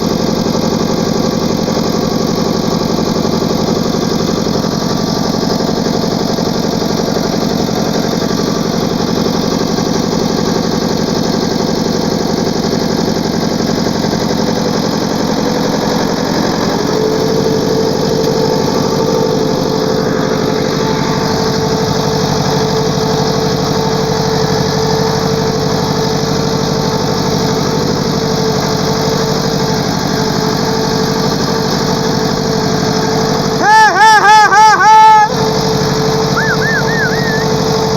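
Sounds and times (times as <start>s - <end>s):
tractor engine running: 0.0s - 37.9s
high steady tone: 36.4s - 37.6s.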